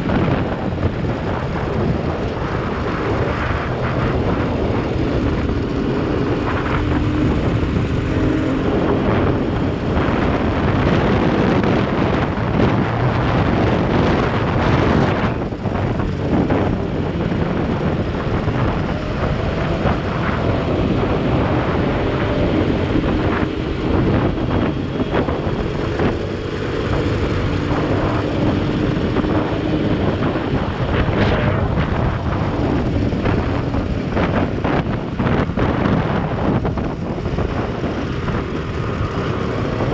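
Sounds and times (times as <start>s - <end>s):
motorcycle engine running: 0.0s - 39.9s
road noise: 0.0s - 39.9s
wind rushing over microphone: 0.0s - 39.9s.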